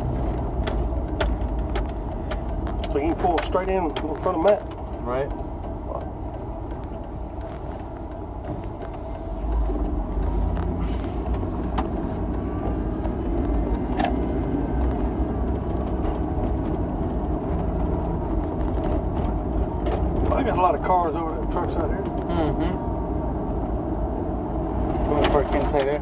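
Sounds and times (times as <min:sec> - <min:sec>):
vehicle engine and road rumble: 0:00.0 - 0:26.0.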